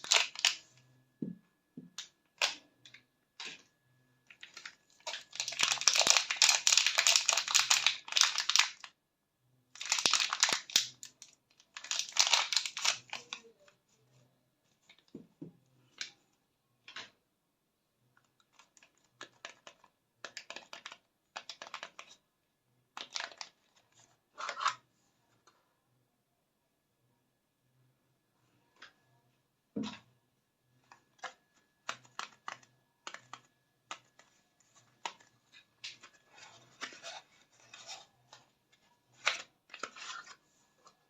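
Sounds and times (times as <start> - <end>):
paper wrappers crinkling and tearing: 0.0 - 0.6, 4.4 - 8.8, 9.8 - 11.0, 11.7 - 13.4.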